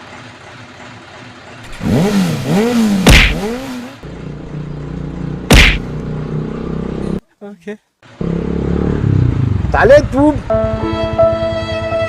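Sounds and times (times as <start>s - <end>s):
vehicle engine revving: 1.5s - 7.2s, 8.1s - 11.6s
loud bangs: 1.7s - 3.8s, 5.5s - 5.9s.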